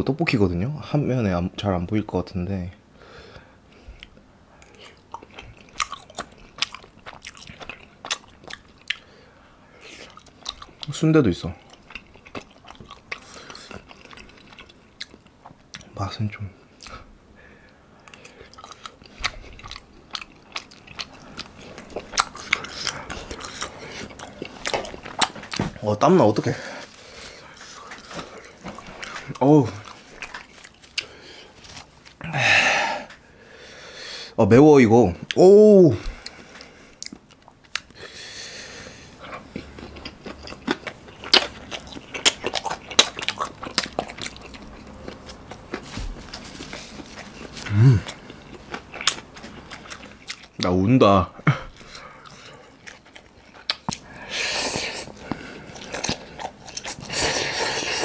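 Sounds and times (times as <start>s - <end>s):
chewing and mouth clicks: 3.9s - 9.1s, 9.8s - 16.0s, 18.0s - 25.8s, 26.8s - 32.2s, 36.1s - 38.0s, 39.1s - 50.7s, 51.7s - 58.0s
wet mouth clicks and smacks: 53.6s - 54.0s.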